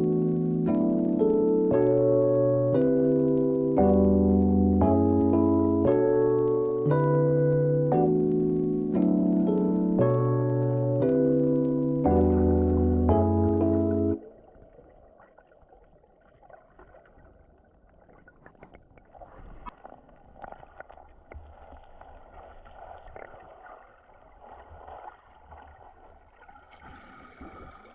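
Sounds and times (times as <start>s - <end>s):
small clicks and splashes: 13.8s - 27.9s
stream water gurgling: 14.2s - 27.9s.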